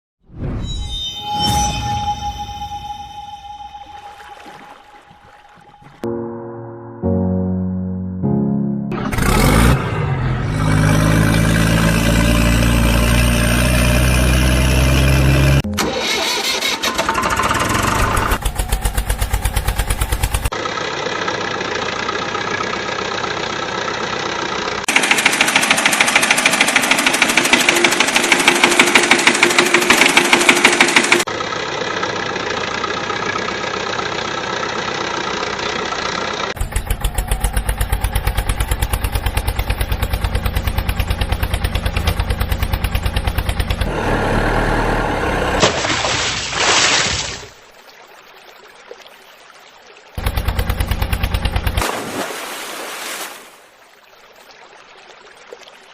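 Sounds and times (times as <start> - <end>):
engine chugging: 9.0 - 45.6, 50.2 - 51.8.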